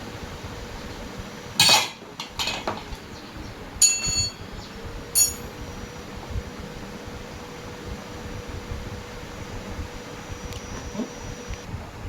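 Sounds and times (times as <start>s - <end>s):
ringing metallic clinks: 3.8s - 4.5s, 5.2s - 5.6s.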